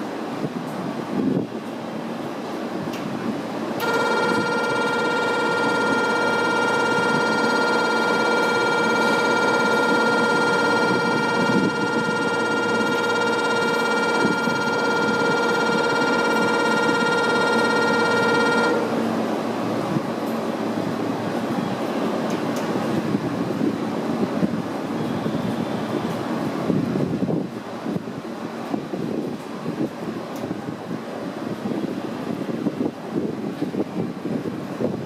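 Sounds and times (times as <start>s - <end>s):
wind: 0.0s - 35.0s
electronic buzzer tone: 3.8s - 19.0s
station noise: 3.8s - 22.6s.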